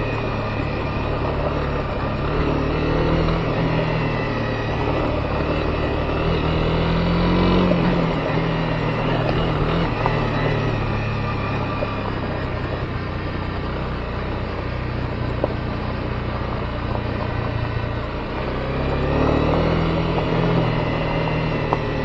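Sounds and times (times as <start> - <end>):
motorcycle engine running: 0.0 - 22.0
tyre and road noise: 0.0 - 22.0.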